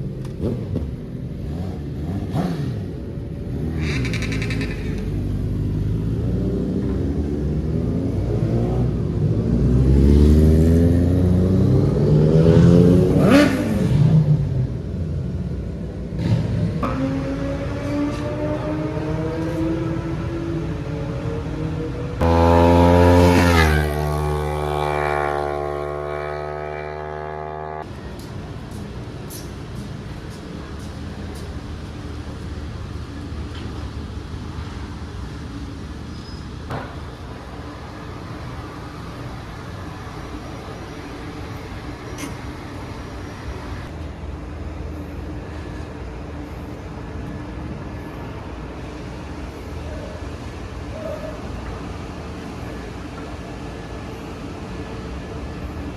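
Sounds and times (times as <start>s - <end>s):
vehicle engines rumbling: 0.0s - 55.9s
motorcycle engine passing: 0.4s - 14.7s, 16.2s - 28.0s.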